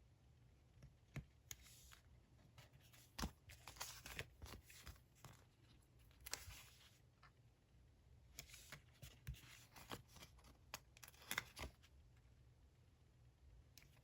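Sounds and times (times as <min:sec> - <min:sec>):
paper rustling: 0:01.6 - 0:07.0.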